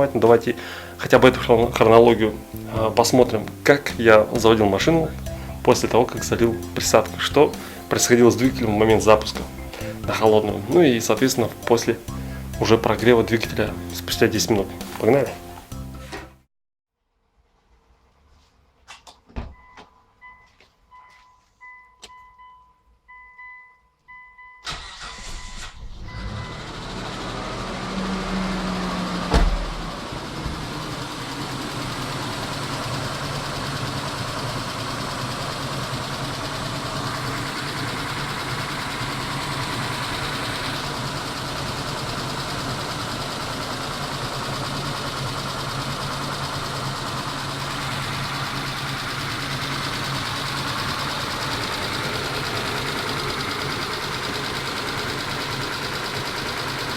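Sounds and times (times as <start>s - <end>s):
car engine idling: 0.0s - 16.4s, 24.7s - 56.9s
starter cranking: 0.0s - 16.4s, 29.6s - 56.9s
warning chimes: 19.6s - 24.8s, 25.4s - 27.4s
loud thump: 29.2s - 30.7s.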